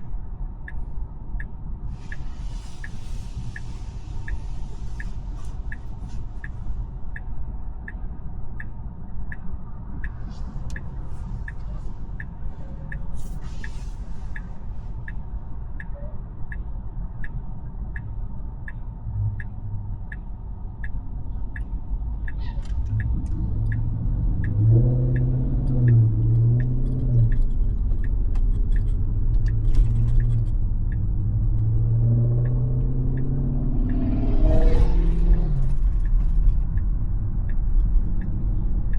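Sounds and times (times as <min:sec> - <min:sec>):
low droning hum: 0:00.0 - 0:38.9
road and tyre rumble: 0:00.0 - 0:38.9
turn signal ticking: 0:00.0 - 0:38.9.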